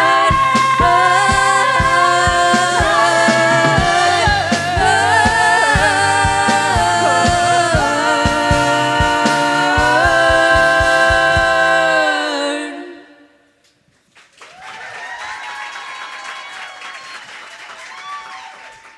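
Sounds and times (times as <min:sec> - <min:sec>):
low steady beat: 0:00.0 - 0:11.8
voices singing in harmony: 0:00.0 - 0:13.4
audience applause and cheering: 0:14.2 - 0:18.9.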